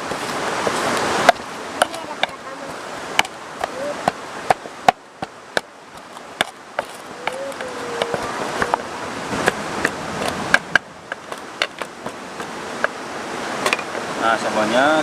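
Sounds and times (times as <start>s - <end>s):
river water rushing: 0.0s - 15.0s
stone pestle knocking in mortar: 1.3s - 8.8s, 9.4s - 13.0s.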